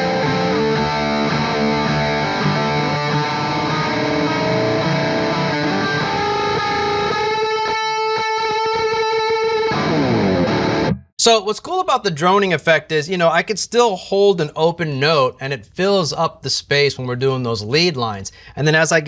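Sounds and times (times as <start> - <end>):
distorted electric guitar: 0.0 - 11.0.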